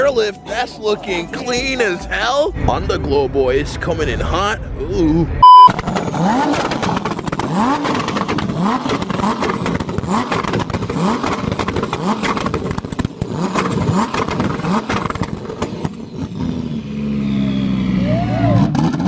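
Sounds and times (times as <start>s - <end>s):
vehicle engine revving in blips: 5.4s - 19.0s.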